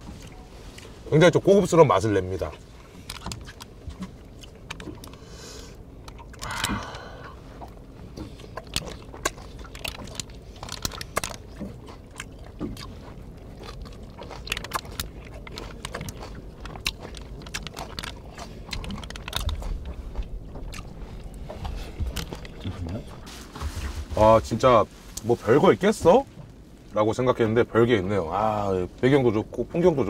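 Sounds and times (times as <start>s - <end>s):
chewing and crunching food: 0.0s - 27.0s
mouth sounds: 6.4s - 7.3s.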